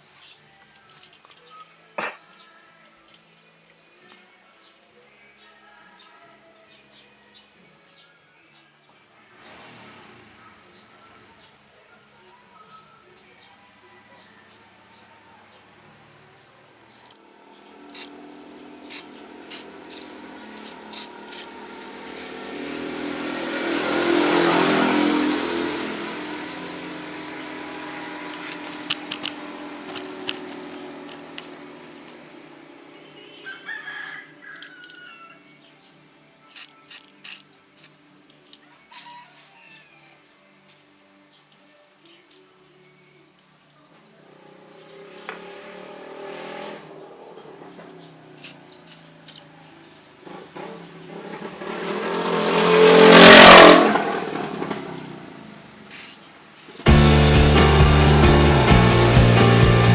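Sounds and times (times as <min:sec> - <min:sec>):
engine hum: 0:09.3 - 0:11.6, 0:17.0 - 0:33.4, 0:44.4 - 0:56.0, 0:56.8 - 0:59.9
rooster crowing: 0:33.2 - 0:35.6, 0:38.9 - 0:40.2.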